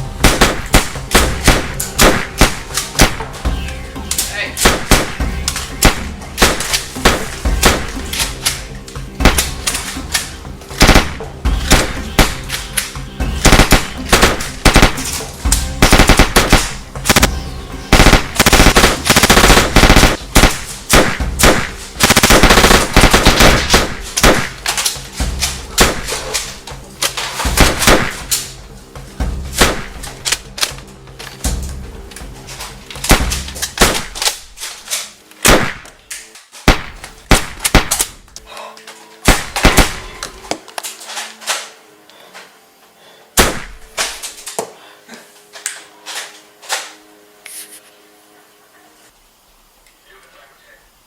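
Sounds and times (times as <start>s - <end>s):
background music: 0.0s - 49.8s
gunfire single shots and automatic bursts: 0.2s - 3.4s, 4.6s - 8.5s, 10.8s - 12.6s, 13.3s - 26.6s, 27.5s - 28.4s, 29.6s - 30.4s, 33.0s - 34.6s, 35.4s - 36.0s, 36.6s - 38.2s, 39.3s - 40.3s, 43.4s - 44.2s.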